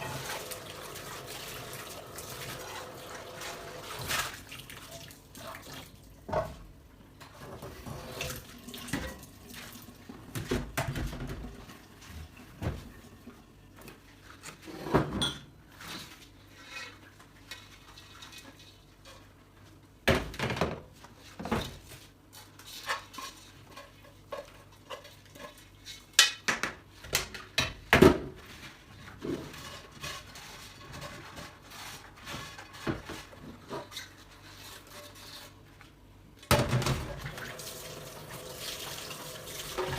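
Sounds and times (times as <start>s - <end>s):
running tap water: 0.0s - 6.0s, 37.1s - 39.9s
dishes and cutlery clattering: 14.9s - 15.5s.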